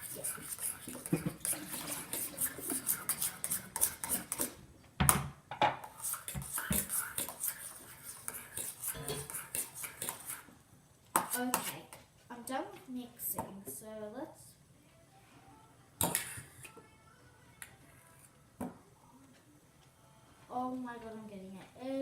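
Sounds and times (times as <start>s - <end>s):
utensil stirring thick slime: 0.0s - 4.6s, 5.9s - 10.6s, 11.2s - 12.0s.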